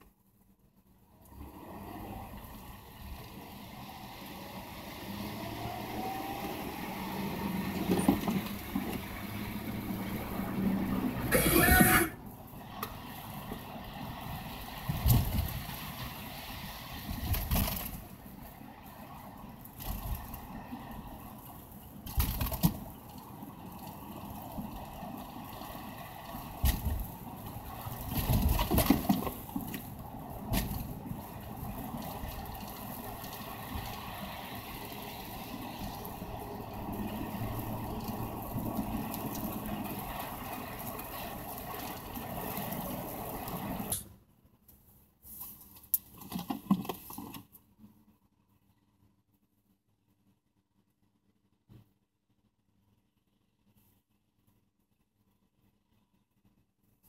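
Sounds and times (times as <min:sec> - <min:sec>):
car engine and road hum: 0:00.0 - 0:48.6
tyres hissing through slush: 0:29.3 - 0:44.0.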